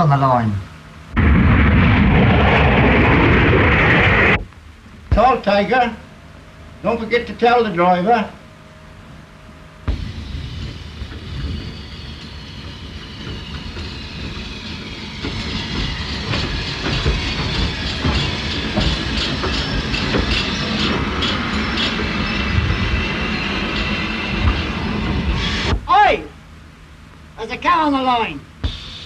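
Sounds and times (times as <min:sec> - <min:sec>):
steam train running: 0:09.7 - 0:25.8, 0:28.0 - 0:29.0.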